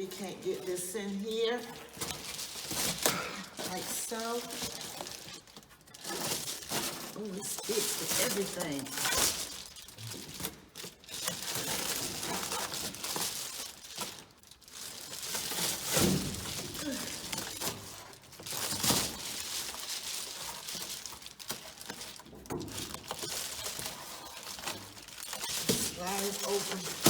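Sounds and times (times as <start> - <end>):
insulation sheet crinkling: 0.0 - 27.0.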